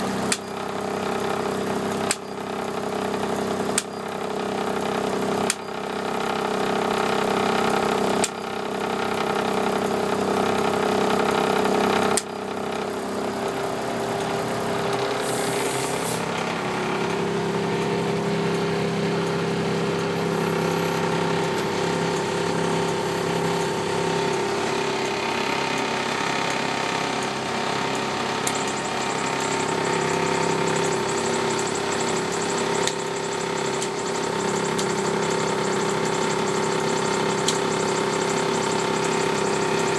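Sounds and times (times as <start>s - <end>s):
diesel engine running: 0.0s - 39.9s
brief hiss: 15.2s - 16.3s.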